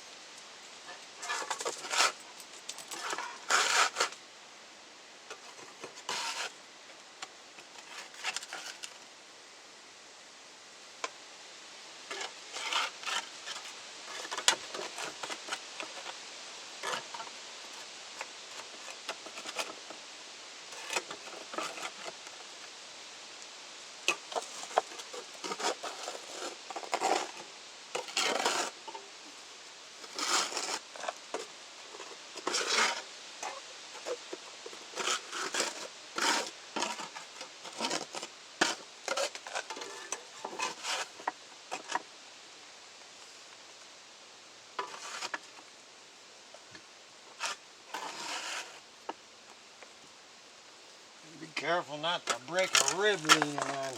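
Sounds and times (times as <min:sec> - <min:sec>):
tools scraping on brick and ash: 0:00.8 - 0:04.2, 0:05.3 - 0:06.6, 0:07.2 - 0:09.0, 0:12.0 - 0:20.0, 0:20.7 - 0:22.6, 0:24.0 - 0:29.1, 0:29.9 - 0:42.1, 0:44.8 - 0:45.8, 0:47.3 - 0:49.2, 0:51.6 - 0:53.9.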